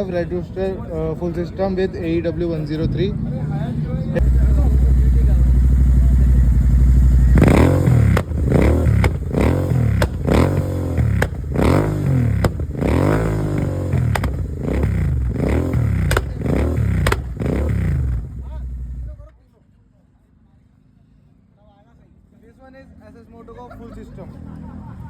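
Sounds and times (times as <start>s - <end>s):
motorcycle engine revving: 3.3s - 19.3s
exhaust pops and crackles: 4.2s - 19.2s.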